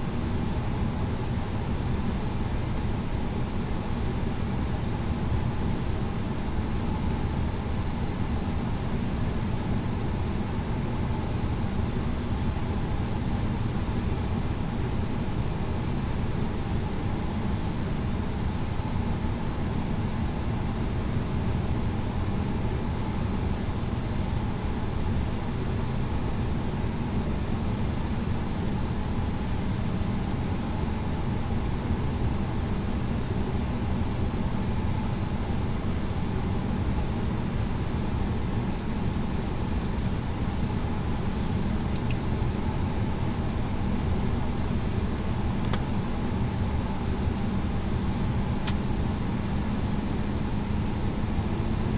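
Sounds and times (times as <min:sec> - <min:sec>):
airliner cabin engine rumble: 0:37.6 - 0:51.9.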